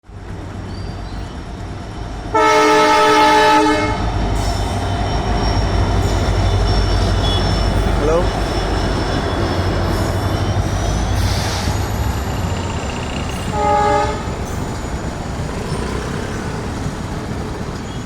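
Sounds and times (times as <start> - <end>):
train rumbling: 0.0 - 18.0
locomotive horn blast: 2.3 - 4.2, 5.2 - 11.6, 13.3 - 14.6.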